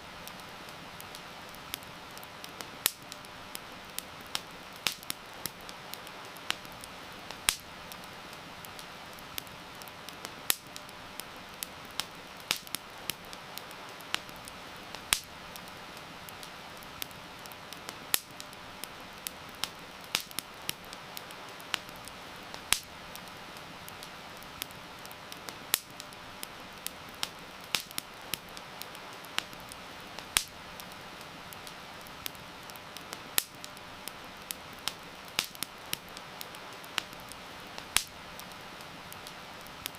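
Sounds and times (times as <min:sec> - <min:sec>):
rain hiss: 0:00.0 - 0:39.9
wood fire crackling: 0:00.0 - 0:39.9.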